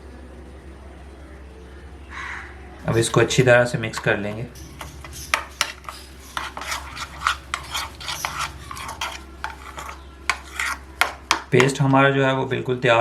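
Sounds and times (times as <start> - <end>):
spoon stirring in a bowl: 2.8 - 11.9.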